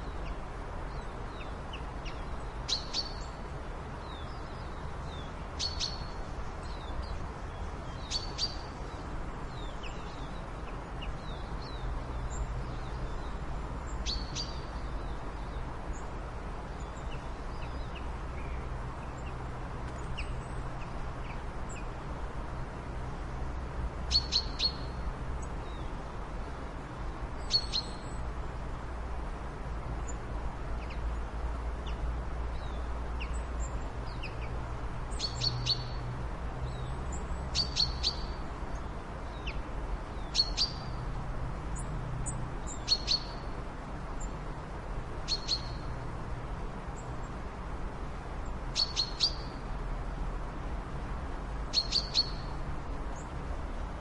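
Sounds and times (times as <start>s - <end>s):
bird chirping: 0.2s - 3.4s, 4.0s - 8.6s, 14.0s - 14.9s, 24.1s - 24.9s, 35.1s - 36.0s, 36.7s - 38.4s, 40.2s - 41.0s, 42.6s - 43.5s, 45.3s - 45.9s, 48.8s - 49.6s, 51.7s - 52.5s.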